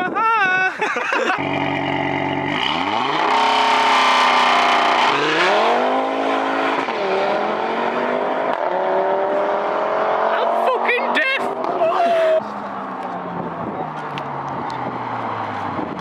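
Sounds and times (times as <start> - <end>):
car engine revving hard: 1.4 - 12.3.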